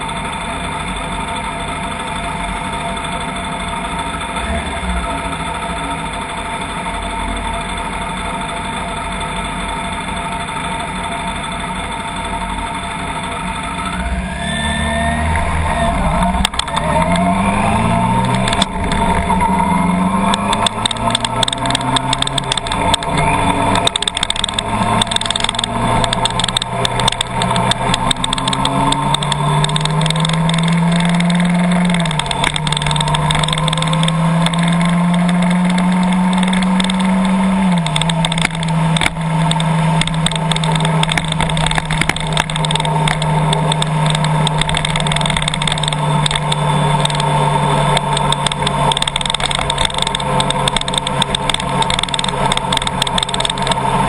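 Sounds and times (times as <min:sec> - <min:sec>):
car engine revving through gears: 0:00.0 - 0:08.6, 0:10.0 - 0:54.0
quick sharp ticks: 0:16.4 - 0:54.0.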